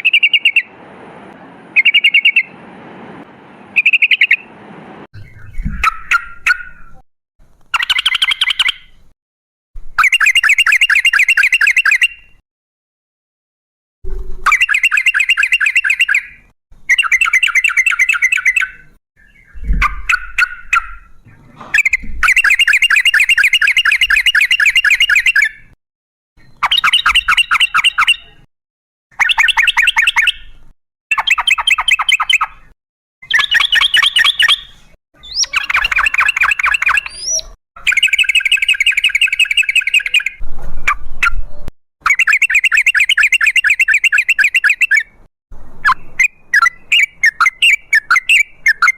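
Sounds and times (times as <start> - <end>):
bird bubbling song: 0.0 - 0.8, 1.4 - 2.6, 3.6 - 4.5, 5.2 - 7.0, 7.7 - 9.0, 14.1 - 25.7, 29.2 - 45.2.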